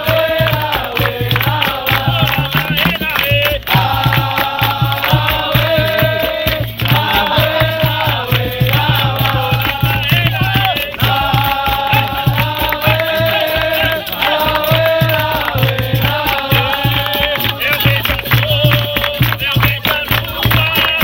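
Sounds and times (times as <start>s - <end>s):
hand drum beat: 0.0s - 21.0s
rattling percussion: 0.0s - 21.0s
voices singing a chant: 0.0s - 21.0s.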